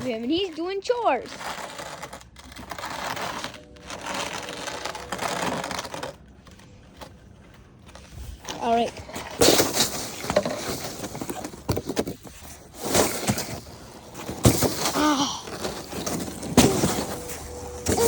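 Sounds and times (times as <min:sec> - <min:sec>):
snow shovel scraping snow: 0:12.4 - 0:18.0.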